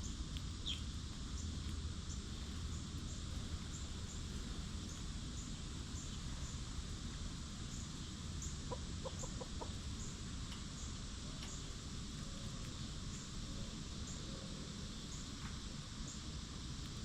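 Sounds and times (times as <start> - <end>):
outdoor hiss and rumble: 0.0 - 17.0
hen clucking: 8.6 - 9.8.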